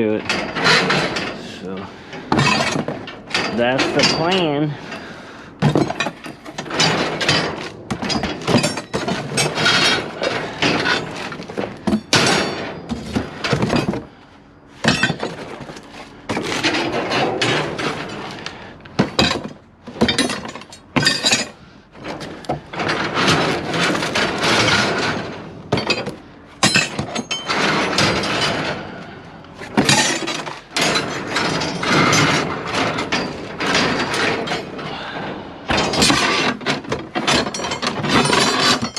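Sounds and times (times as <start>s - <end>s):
scrap metal clanking and clattering: 0.0s - 38.9s
scrap pieces scraping: 14.8s - 38.9s.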